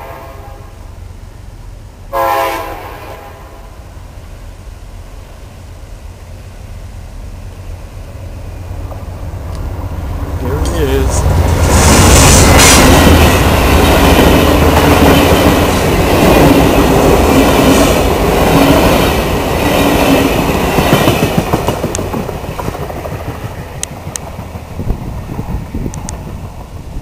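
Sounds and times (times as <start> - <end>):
train wheels clattering on rails: 8.8 - 27.0.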